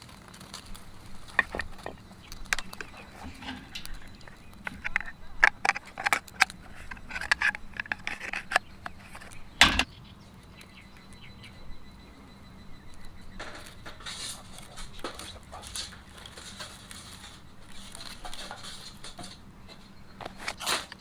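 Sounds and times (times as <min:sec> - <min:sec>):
sharp clicks and knocks: 0:00.0 - 0:11.6.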